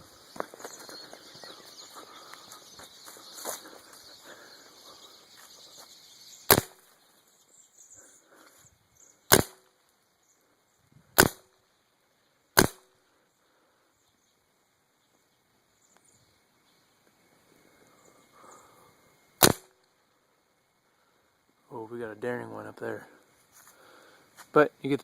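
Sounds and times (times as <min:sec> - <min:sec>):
birds chattering: 0:00.0 - 0:09.4
paintball gun pops: 0:06.5 - 0:06.8, 0:09.3 - 0:09.7, 0:11.2 - 0:11.4, 0:12.6 - 0:12.8, 0:19.4 - 0:19.7.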